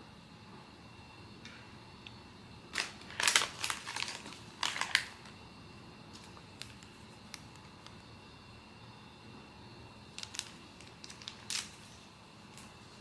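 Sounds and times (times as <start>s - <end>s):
packaging clicks and crinkles: 2.7s - 5.4s, 6.1s - 8.0s, 10.1s - 11.9s.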